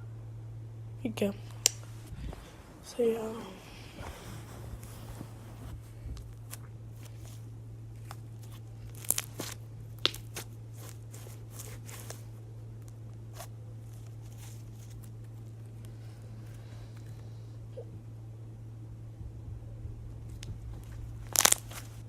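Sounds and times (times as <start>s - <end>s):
low hum: 0.0s - 22.0s
slime squished by hand: 6.1s - 12.3s, 20.3s - 22.0s.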